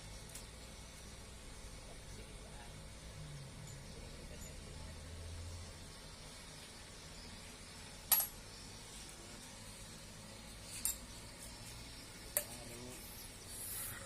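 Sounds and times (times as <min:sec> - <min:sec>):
faint low hum: 0:00.0 - 0:14.0
sharp metallic clinks: 0:03.2 - 0:05.2, 0:08.0 - 0:08.6, 0:10.6 - 0:11.2.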